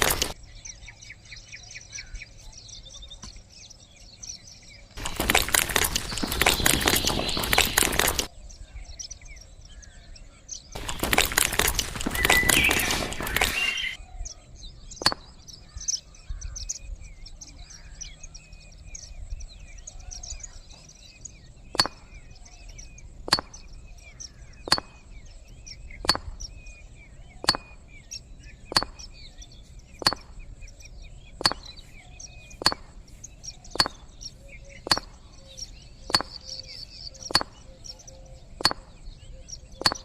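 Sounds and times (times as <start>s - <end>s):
small birds chirping: 0.0s - 40.0s
sharp repeating knock: 21.8s - 22.2s, 23.3s - 23.7s, 24.7s - 25.1s, 26.0s - 26.4s, 27.4s - 27.8s, 28.7s - 29.2s, 30.0s - 30.4s, 31.4s - 31.8s, 32.6s - 33.0s, 33.8s - 34.2s, 34.9s - 35.2s, 36.1s - 36.5s, 37.2s - 37.7s, 38.6s - 39.0s.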